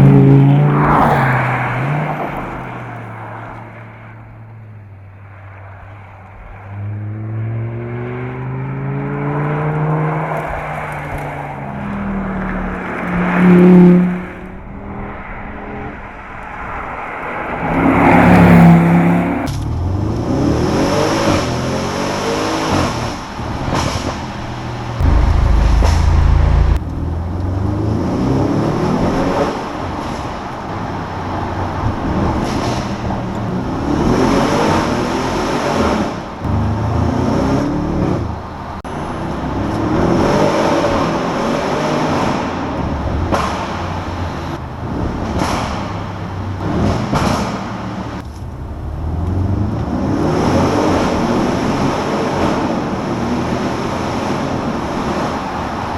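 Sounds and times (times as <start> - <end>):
sports car engine accelerating: 17.6 - 29.6
heavy low rumble: 24.8 - 28.0.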